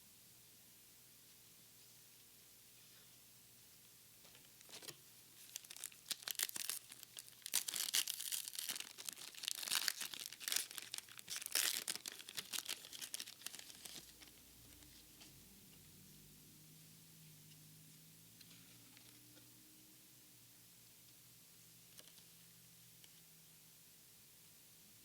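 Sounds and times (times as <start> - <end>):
foil wrapper tearing and crinkling: 4.8 - 14.3.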